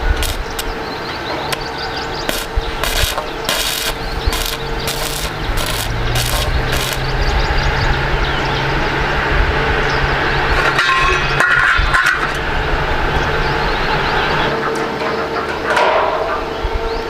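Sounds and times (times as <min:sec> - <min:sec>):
arc welding crackling hiss: 0:00.0 - 0:00.8, 0:01.5 - 0:07.2
low electrical hum: 0:00.0 - 0:17.0.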